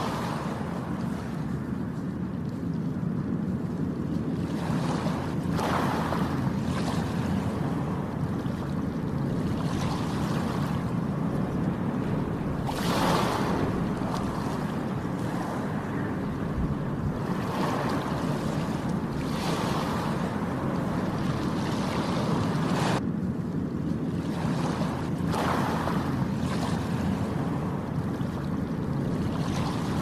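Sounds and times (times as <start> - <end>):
sea waves breaking on shore: 0.0 - 30.0
steady low rumble: 0.0 - 30.0.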